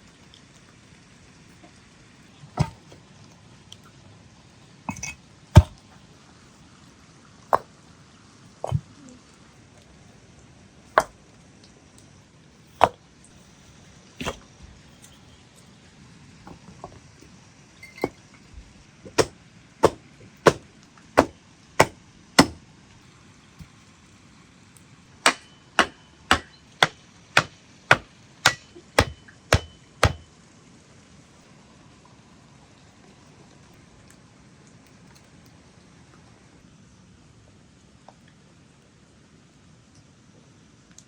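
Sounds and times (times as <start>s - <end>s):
blade chopping onto wooden block: 2.6s - 2.8s, 5.6s - 5.8s, 11.0s - 11.2s, 12.8s - 13.0s, 14.2s - 14.4s, 19.1s - 22.6s, 25.2s - 30.3s.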